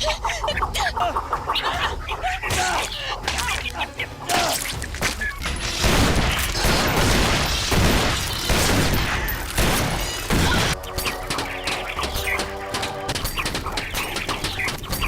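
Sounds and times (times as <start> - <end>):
music: 0.0 - 15.0.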